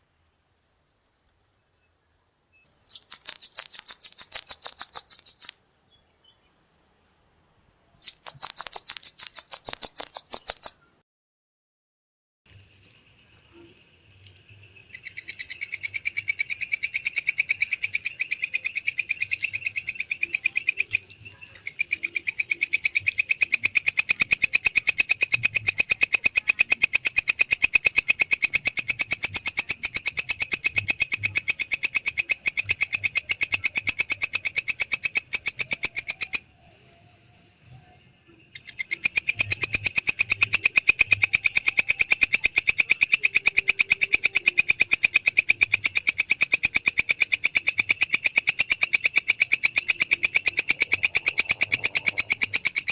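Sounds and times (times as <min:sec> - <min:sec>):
songbird trilling: 0:02.5 - 0:06.4, 0:08.0 - 0:11.0, 0:14.7 - 0:52.9.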